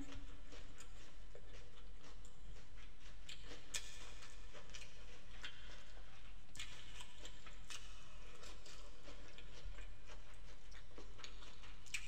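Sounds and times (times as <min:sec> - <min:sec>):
low steady hum: 0:00.0 - 0:02.6
wet chewing and smacking: 0:00.0 - 0:12.0.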